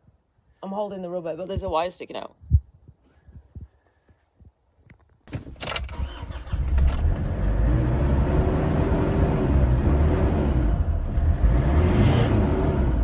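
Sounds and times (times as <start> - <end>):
diesel engine cranking and starting: 5.3 - 13.0.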